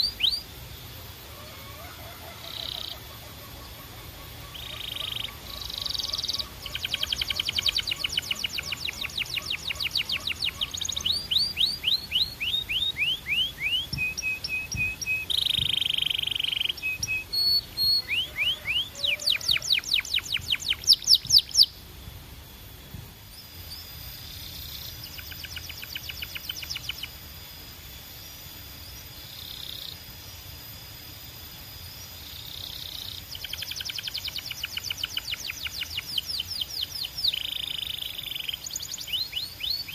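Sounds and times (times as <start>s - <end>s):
canary singing trills: 0.0s - 21.8s, 23.3s - 30.2s, 31.8s - 39.9s.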